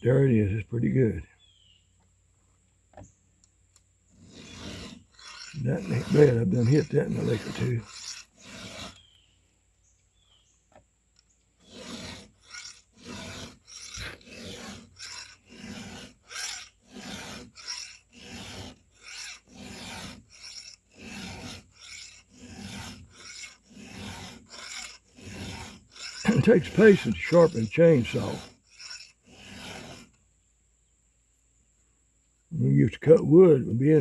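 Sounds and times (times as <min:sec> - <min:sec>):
file rasping on chainsaw chain: 0:04.1 - 0:09.2, 0:11.2 - 0:30.2.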